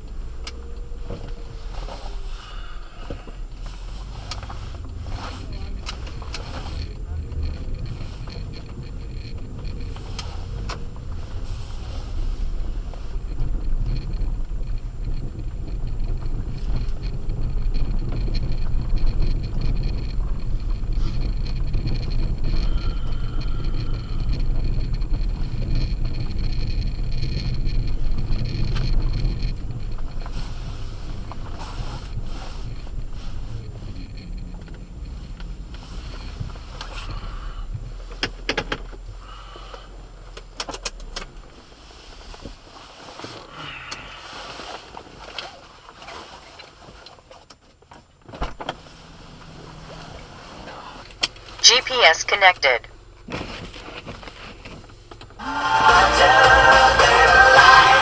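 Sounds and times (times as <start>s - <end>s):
tyre and road rumble in car cabin: 0.0s - 58.0s
clicks and knocks in car cabin: 38.0s - 39.1s.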